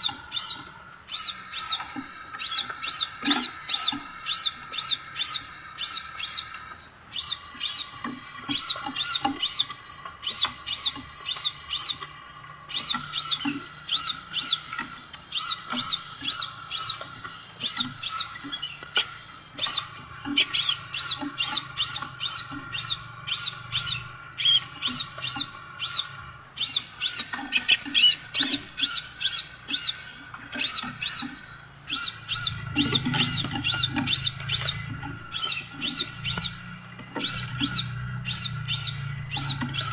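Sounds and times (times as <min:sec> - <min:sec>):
bird high repeated chirps: 0:00.0 - 0:39.9.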